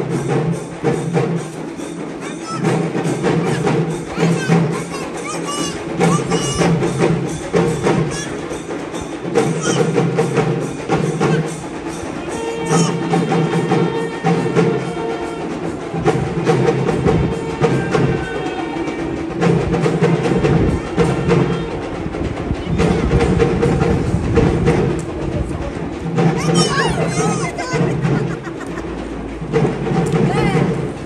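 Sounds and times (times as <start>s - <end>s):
drum and wood block strikes: 0.0s - 31.0s.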